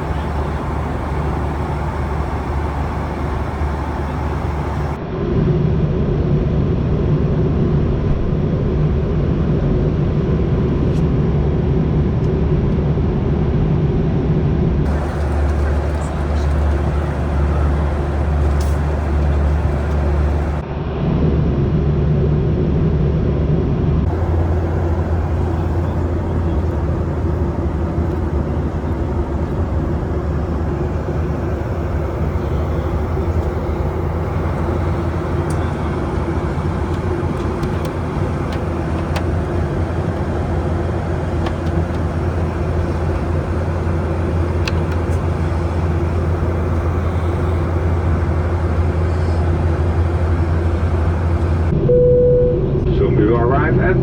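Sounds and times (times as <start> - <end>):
airplane cabin drone: 0.0 - 5.0, 14.8 - 20.6, 24.0 - 53.0.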